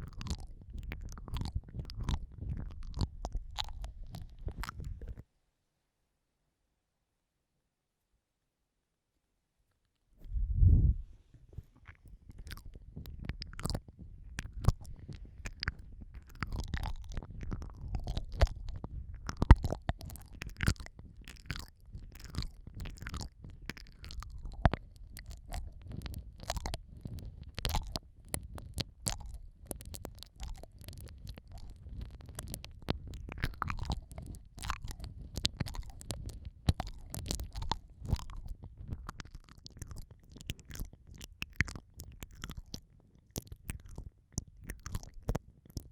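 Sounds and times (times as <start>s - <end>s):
wet mouth licking and smacking: 0.0s - 5.2s, 11.6s - 45.9s
small irregular clicks: 0.0s - 5.3s, 11.5s - 45.9s
microphone contact rumble: 10.2s - 20.2s.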